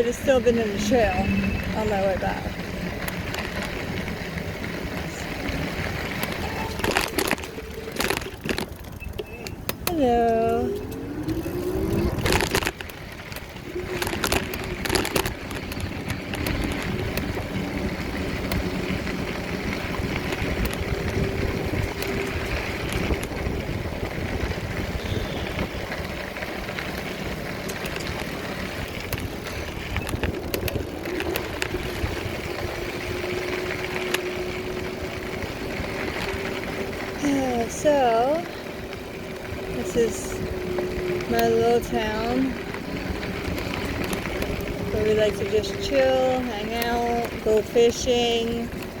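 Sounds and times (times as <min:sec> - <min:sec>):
wind rushing over microphone: 0:00.0 - 0:49.0.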